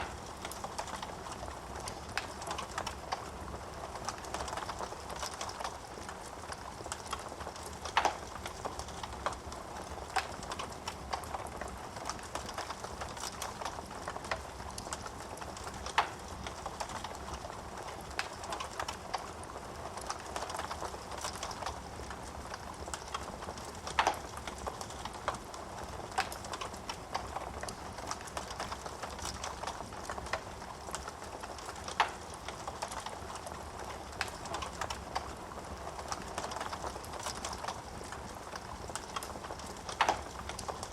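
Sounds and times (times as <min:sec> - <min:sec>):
wood fire crackling: 0:00.0 - 0:40.9
sharp pops of burning wood: 0:06.9 - 0:09.4.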